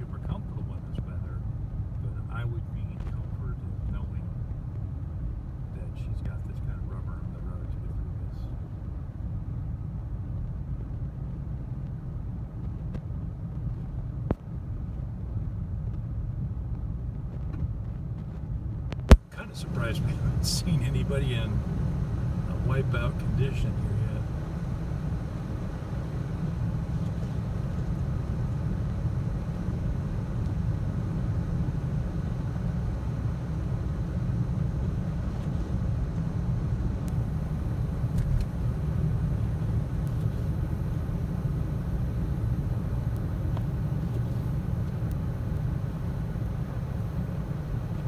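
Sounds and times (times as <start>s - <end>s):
car engine: 19.1s - 48.0s
tyres on road: 19.2s - 29.6s.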